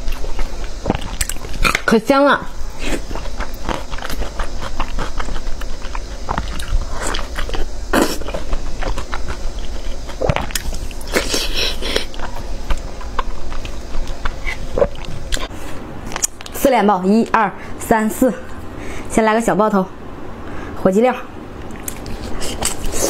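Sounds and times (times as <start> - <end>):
person chewing and biting: 0.0 - 1.9, 2.7 - 16.6, 21.7 - 23.0.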